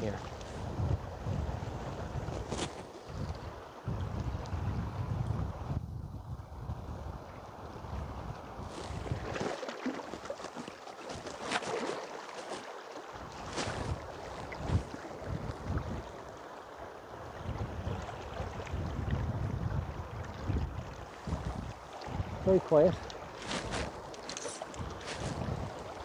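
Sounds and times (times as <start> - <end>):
wind buffeting microphone: 0.0 - 9.5, 13.1 - 16.4, 17.1 - 26.0
river water rushing: 8.7 - 15.3, 21.1 - 26.0.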